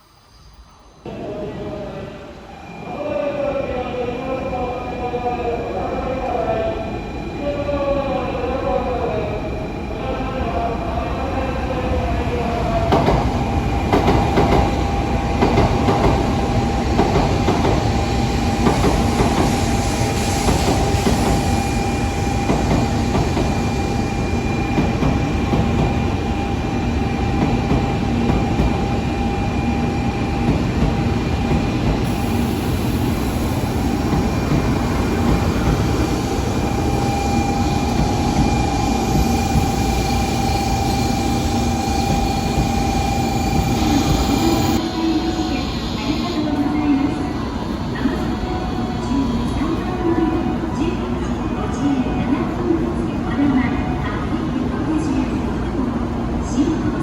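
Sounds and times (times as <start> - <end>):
train rumble and hum: 1.0 - 57.0.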